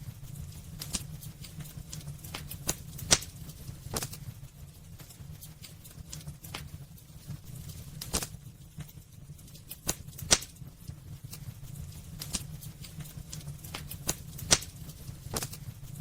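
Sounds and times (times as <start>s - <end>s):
low steady fire rumble: 0.0s - 16.0s
wood fire crackling and popping: 0.0s - 16.0s.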